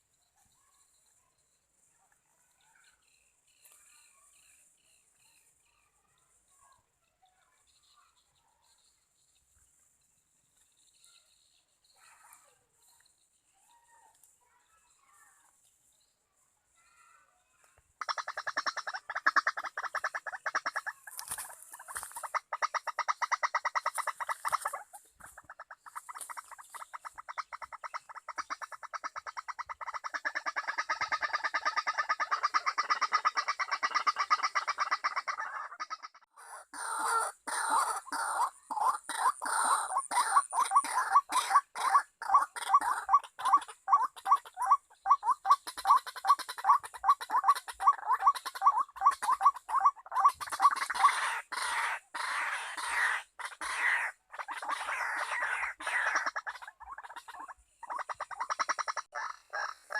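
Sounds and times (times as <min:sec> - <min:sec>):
bird chattering trill: 0:18.0 - 0:59.9.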